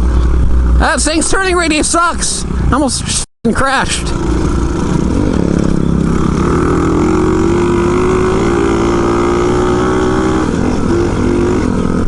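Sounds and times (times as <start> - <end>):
motorbike engine running: 3.8 - 12.0.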